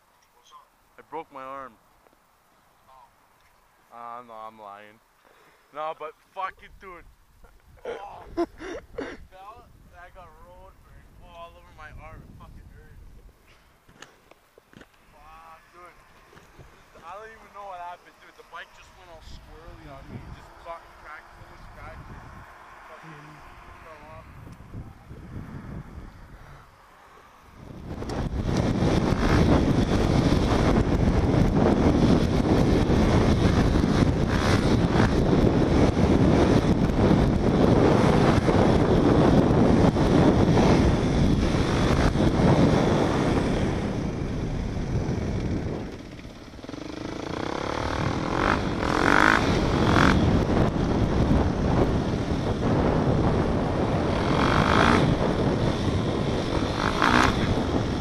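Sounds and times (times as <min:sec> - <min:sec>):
wind noise on microphone: 0:06.6 - 0:13.6, 0:19.0 - 0:20.8, 0:21.4 - 0:22.6, 0:23.4 - 0:26.8, 0:27.4 - 0:58.0
motorcycle engine running: 0:27.4 - 0:58.0.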